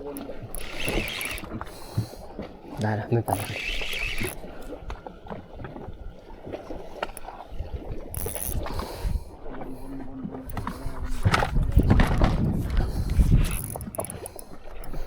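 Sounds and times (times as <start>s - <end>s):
water slapping against boat hull: 0.0s - 15.0s
low rumbling buffeting: 8.6s - 14.4s.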